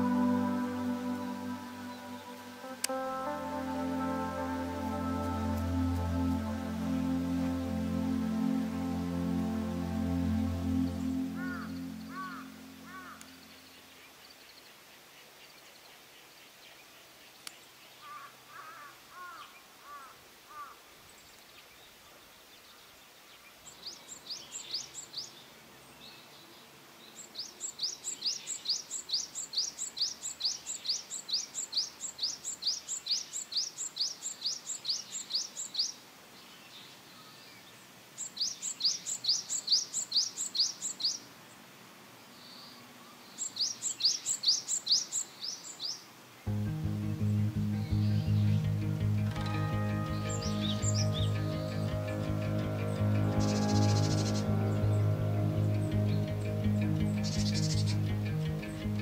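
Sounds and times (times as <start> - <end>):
lower bird calls: 0.0 - 14.1, 47.2 - 59.0
songbird singing trills: 0.0 - 14.2, 36.6 - 41.3, 42.4 - 59.0.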